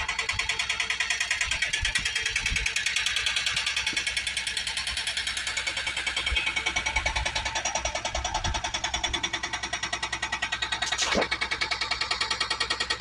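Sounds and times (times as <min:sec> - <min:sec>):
brief swish: 0:10.8 - 0:11.4.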